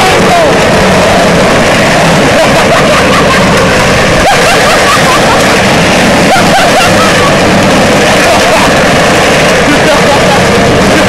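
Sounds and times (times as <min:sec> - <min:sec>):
faint shouting voices: 0:00.0 - 0:01.4
vehicle moving: 0:00.0 - 0:11.0
wind noise on microphone: 0:00.0 - 0:11.0.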